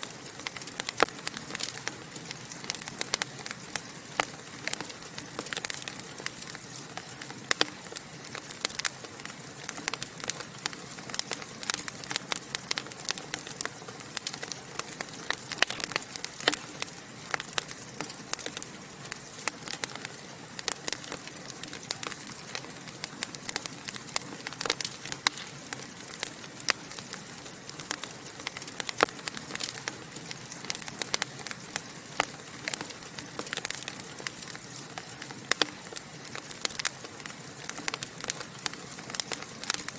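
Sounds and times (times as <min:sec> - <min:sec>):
hiss of burning: 0:00.0 - 0:39.9
wood fire crackling and popping: 0:00.0 - 0:39.9.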